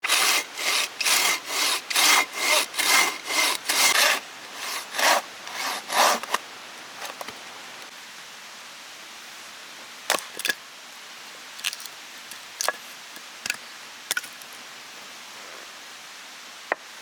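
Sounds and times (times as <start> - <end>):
hand saw cutting wood: 0.0 - 6.4.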